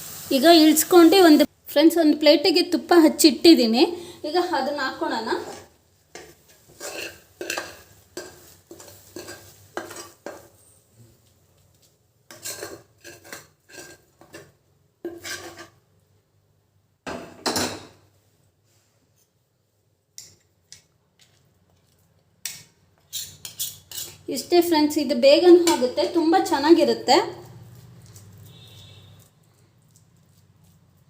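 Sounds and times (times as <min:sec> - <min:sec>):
spoon scraping and knocking pan: 0:05.2 - 0:15.8, 0:22.4 - 0:24.6, 0:25.4 - 0:26.8.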